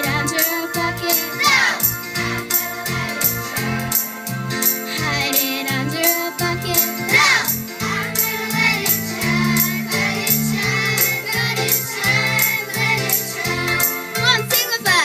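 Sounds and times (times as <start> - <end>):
jingling high percussion: 0.0 - 14.8
bass line: 0.0 - 15.0
choir singing a song: 1.4 - 3.8, 6.8 - 14.2.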